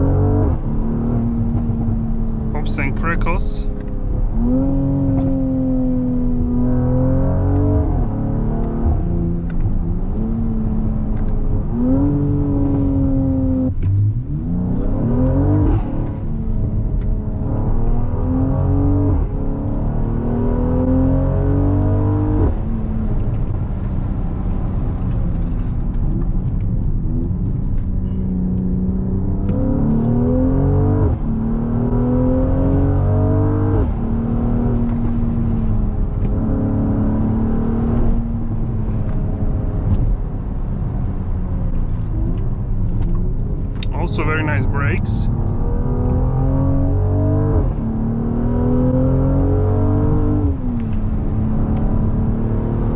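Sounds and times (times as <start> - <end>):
car engine accelerating: 0.0 - 52.9.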